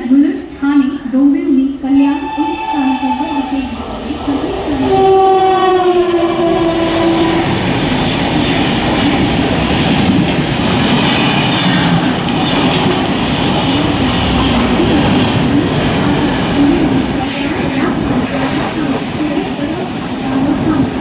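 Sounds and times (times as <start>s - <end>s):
held tone: 2.0s - 7.3s
train wheels rumbling on rails: 2.0s - 21.0s.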